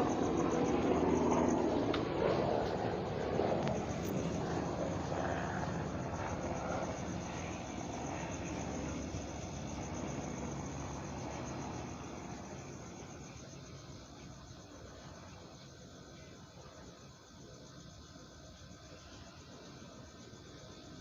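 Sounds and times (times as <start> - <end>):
helicopter rotor and turbine: 0.0 - 15.4
crickets chirping: 0.0 - 21.0.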